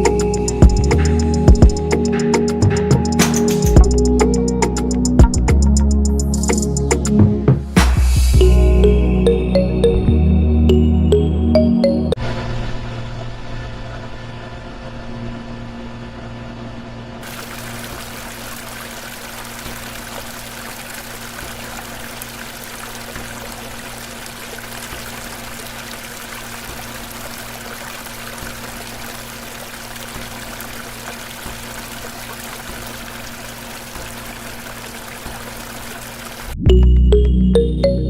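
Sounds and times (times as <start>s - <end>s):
small pump motor humming: 17.2s - 36.6s
water pouring and splashing: 17.2s - 36.6s.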